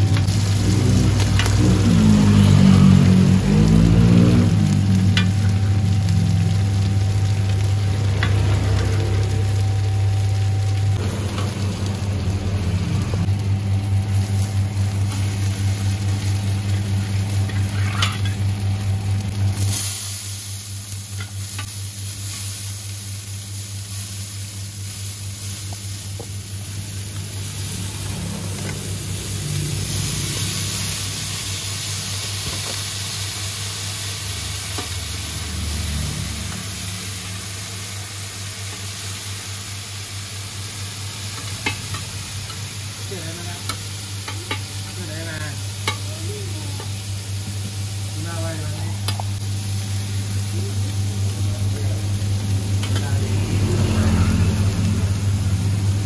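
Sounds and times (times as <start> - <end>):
food sizzling in hot oil: 0.0 - 56.0
metal spatulas scraping pan: 17.5 - 18.4.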